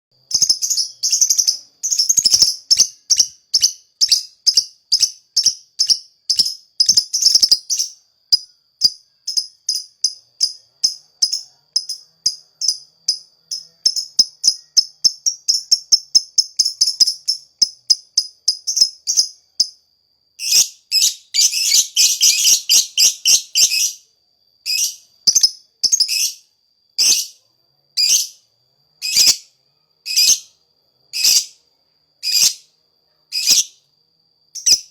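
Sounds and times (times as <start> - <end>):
bird chattering: 0.3 - 8.0
bird song sharp high chips: 0.3 - 9.9.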